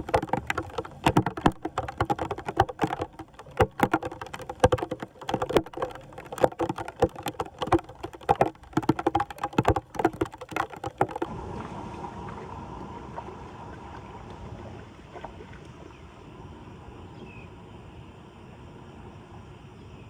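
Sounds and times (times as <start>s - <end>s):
rapid sharp clicks and knocks: 0.0s - 11.3s.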